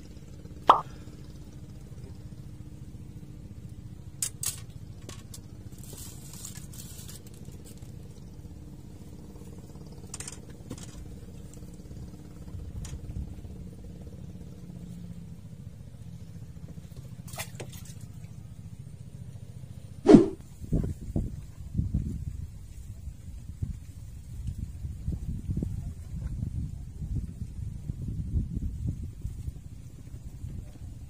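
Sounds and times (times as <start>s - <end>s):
engine droning: 0.0s - 21.0s
object plopping into water: 0.7s - 0.9s.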